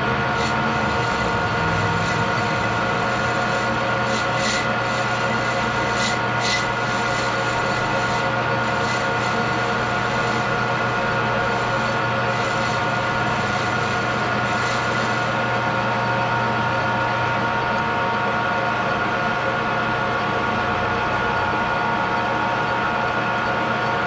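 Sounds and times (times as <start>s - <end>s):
machine tool humming: 0.2s - 17.8s
high hissing scrapes: 0.4s - 16.6s.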